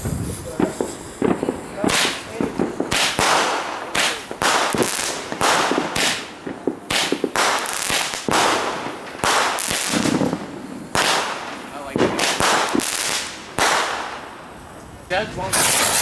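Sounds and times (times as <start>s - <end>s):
fireworks bangs: 0.0s - 14.3s, 15.3s - 16.0s
fireworks crackling and hiss: 0.0s - 16.0s.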